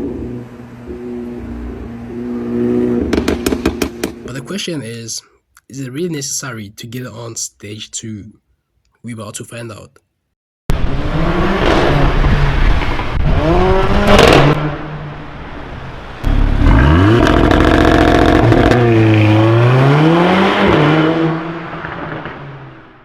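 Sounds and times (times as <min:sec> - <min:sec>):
car engine revving hard: 0:00.0 - 0:04.1, 0:10.7 - 0:15.2, 0:16.2 - 0:22.9.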